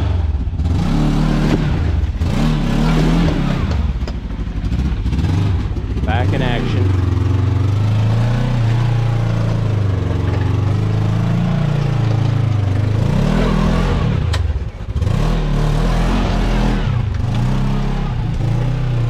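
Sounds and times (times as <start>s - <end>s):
utv engine revving: 0.0s - 19.0s.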